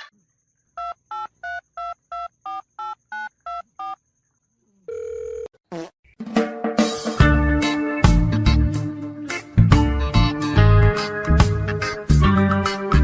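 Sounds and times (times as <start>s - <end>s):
steady telephone tone: 4.9s - 5.6s
loud music: 6.4s - 13.0s.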